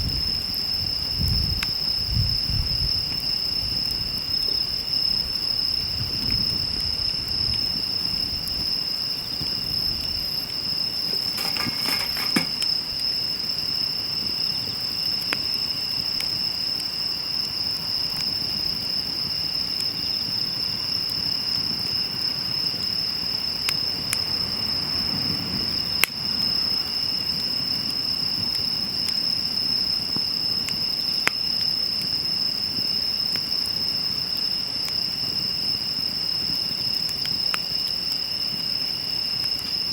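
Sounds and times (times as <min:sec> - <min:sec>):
insects chirring: 0:00.0 - 0:39.9
wood fire crackling: 0:06.5 - 0:24.2.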